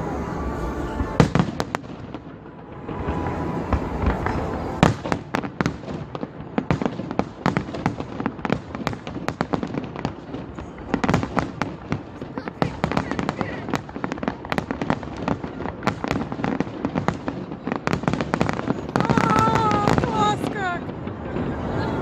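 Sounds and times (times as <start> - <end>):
firework crackling: 0.0 - 22.0
loud firework bang: 1.0 - 9.9.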